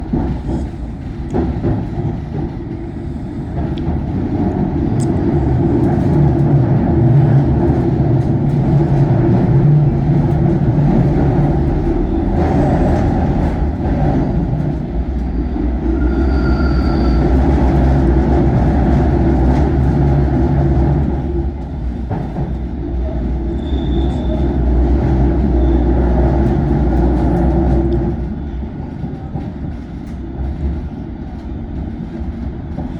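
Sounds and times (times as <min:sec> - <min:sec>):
train wheels rumbling: 0:00.0 - 0:32.9
high-pitched wheel squeals: 0:15.9 - 0:17.8.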